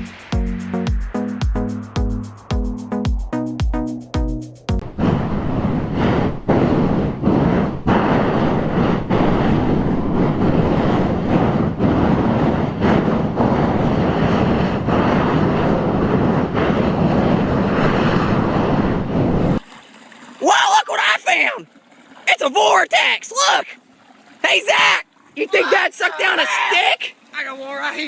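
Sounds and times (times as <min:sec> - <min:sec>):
loud steady rushing noise: 0:00.0 - 0:19.6.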